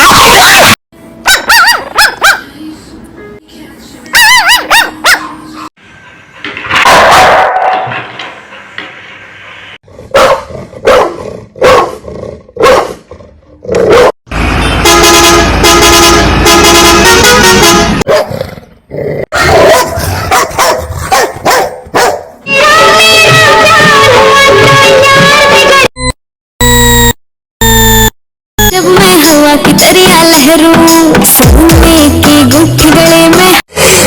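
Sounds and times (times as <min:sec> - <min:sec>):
dogs barking: 0:00.3 - 0:02.5, 0:04.1 - 0:05.4, 0:06.7 - 0:08.0, 0:10.1 - 0:12.0, 0:12.6 - 0:13.1, 0:13.8 - 0:14.2, 0:18.1 - 0:18.4, 0:19.3 - 0:22.4.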